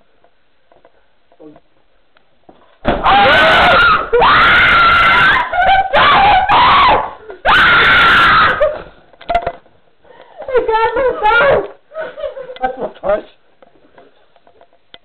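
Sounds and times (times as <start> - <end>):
people screaming: 3.0 - 8.8.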